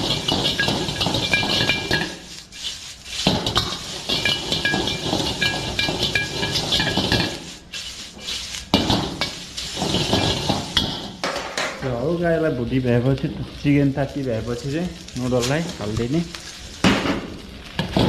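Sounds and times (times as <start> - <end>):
metal utensil scraping a pan: 0.0 - 11.6
food stir-frying: 0.0 - 18.0.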